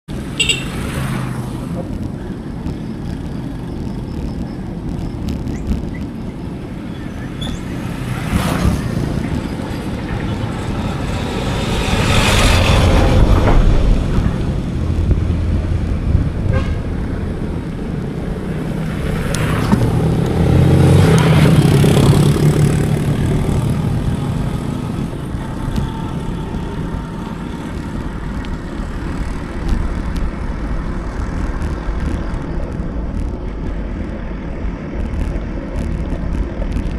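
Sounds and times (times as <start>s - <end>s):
road rumble: 0.0s - 36.9s
motor vehicles passing: 0.1s - 36.9s
wind on microphone: 1.2s - 36.9s.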